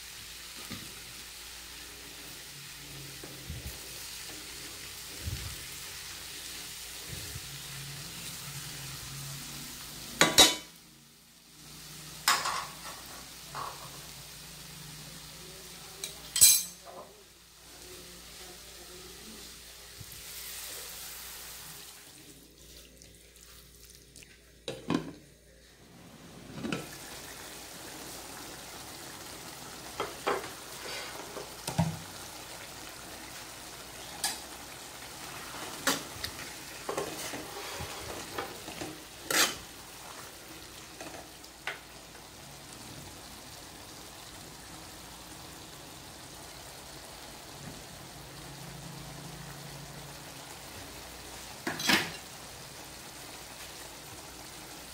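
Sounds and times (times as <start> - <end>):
food sizzling in a wok: 0.0 - 54.9
stirring clicks and scrapes on pan: 35.3 - 40.3.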